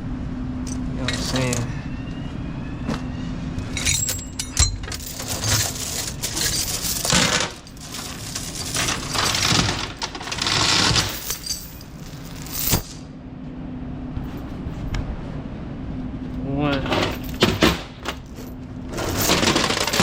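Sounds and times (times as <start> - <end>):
chains clinking and rattling: 3.7 - 13.0, 16.9 - 20.0.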